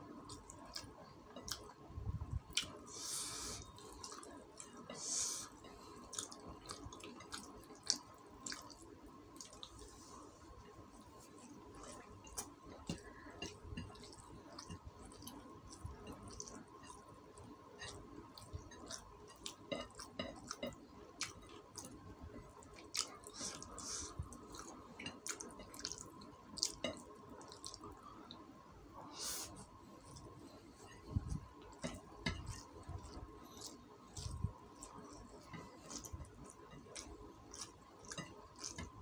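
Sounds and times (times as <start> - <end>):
faint high hum: 0.0 - 39.0
wet chewing and lip-smacking: 5.5 - 9.9, 11.8 - 22.0, 22.6 - 28.4, 31.0 - 39.0.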